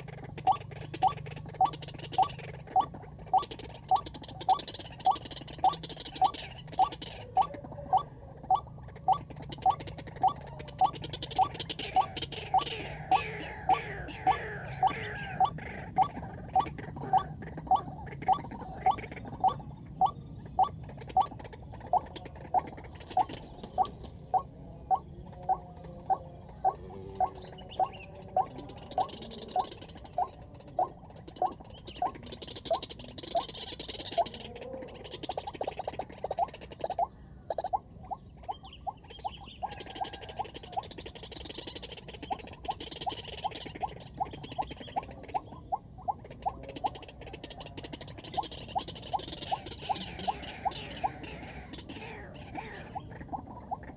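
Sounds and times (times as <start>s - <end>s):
waterhen calling sharp notes: 0.0s - 24.0s.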